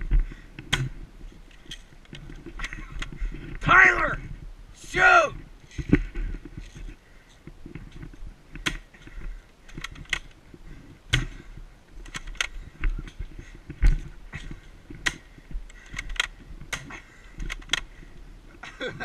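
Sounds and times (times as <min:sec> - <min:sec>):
rustling and handling noise: 0:05.3 - 0:19.0.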